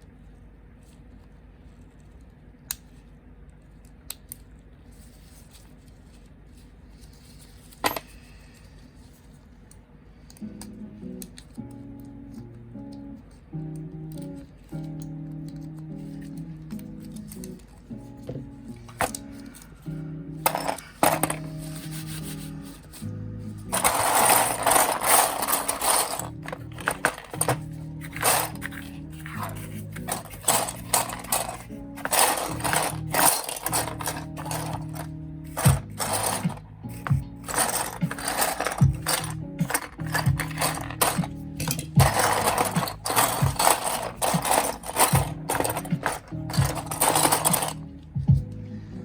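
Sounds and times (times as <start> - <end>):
low steady hum: 0.0 - 49.0
plastic model parts clicking: 3.6 - 4.6
plastic parts rattling: 6.9 - 8.2, 14.1 - 19.7, 20.4 - 21.9, 22.8 - 47.9
background music held notes: 10.2 - 49.0.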